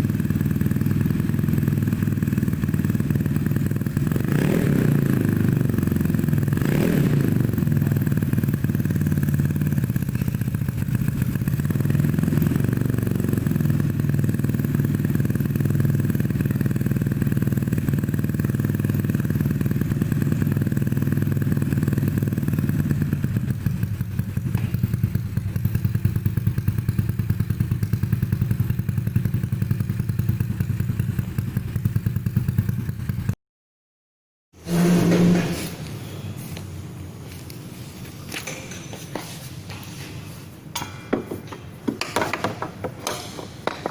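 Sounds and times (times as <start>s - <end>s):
scooter engine idling: 0.0s - 33.4s.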